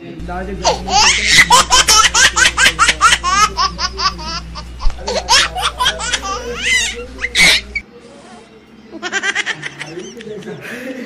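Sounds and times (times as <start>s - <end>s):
high-pitched laughter: 0.7s - 7.8s.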